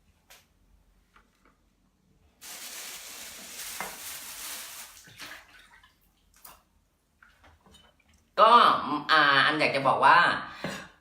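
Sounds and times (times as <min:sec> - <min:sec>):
water running from a tap: 0:02.4 - 0:05.1.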